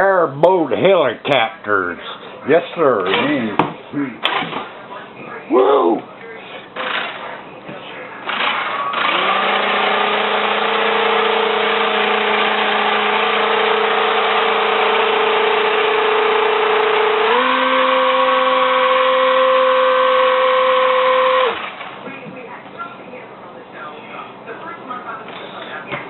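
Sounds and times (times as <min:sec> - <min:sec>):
toy electric motor whining: 0:08.3 - 0:21.9.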